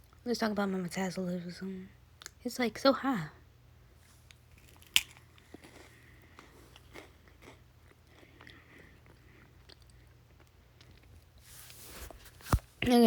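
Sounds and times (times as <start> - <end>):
person chewing food: 4.3 - 11.5.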